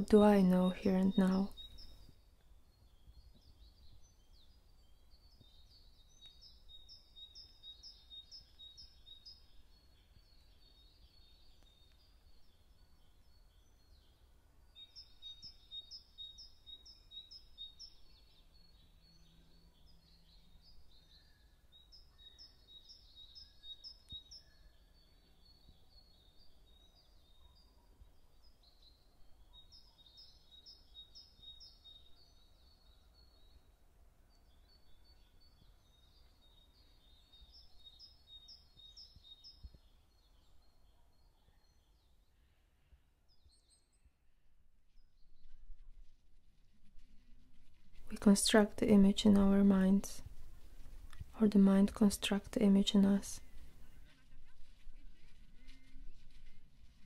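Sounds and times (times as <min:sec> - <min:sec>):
faint songbird chirping: 0:00.0 - 0:57.0
low background noise: 0:00.0 - 0:57.0.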